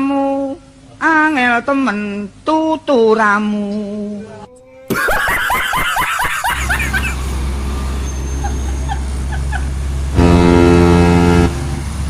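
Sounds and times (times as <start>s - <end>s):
heavy vehicle engine rumble: 6.2s - 12.0s
vehicle horn blast: 10.1s - 11.8s.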